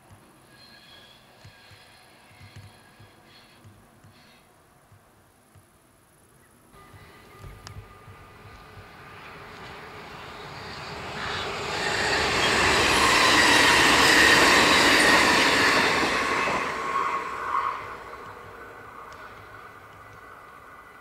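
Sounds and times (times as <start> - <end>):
wheel squeals: 0.4 - 4.4
electric train passing: 6.8 - 21.0.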